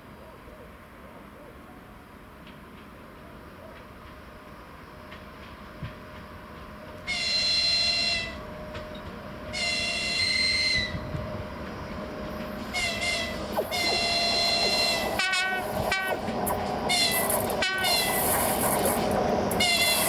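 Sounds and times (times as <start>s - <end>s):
train rumbling: 0.0s - 20.0s
electric locomotive horn blasts: 7.0s - 8.5s, 9.5s - 11.2s, 12.6s - 16.3s, 16.9s - 18.3s, 19.5s - 20.0s.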